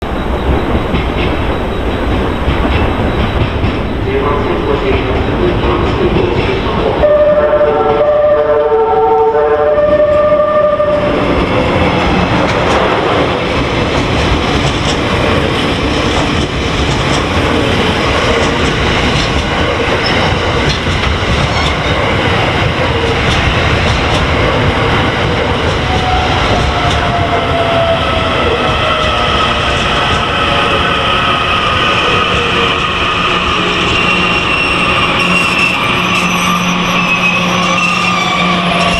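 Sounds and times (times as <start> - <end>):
train wheels rumbling on rail: 0.0 - 38.9
train horn: 6.8 - 11.4, 32.3 - 38.9
train brake squeal: 31.9 - 38.9.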